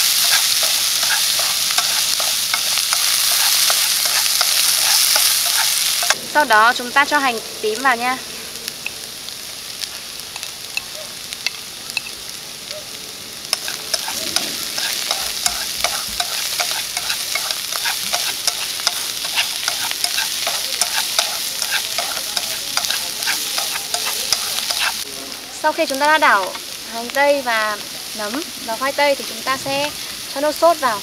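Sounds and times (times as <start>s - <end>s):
chopsticks tapping a pan: 0.0s - 6.2s, 13.5s - 25.0s
vegetables sizzling in oil: 0.0s - 31.0s.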